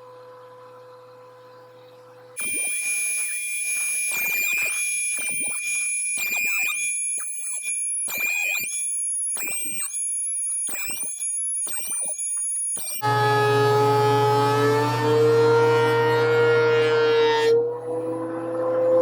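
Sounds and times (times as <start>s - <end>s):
thickness planer whining: 12.3s - 19.0s.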